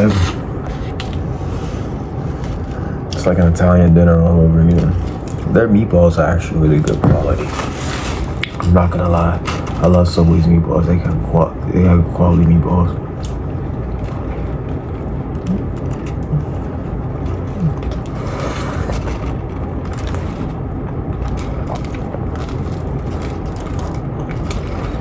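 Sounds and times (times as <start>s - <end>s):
low rumble: 0.0s - 25.0s
chewing: 13.2s - 25.0s.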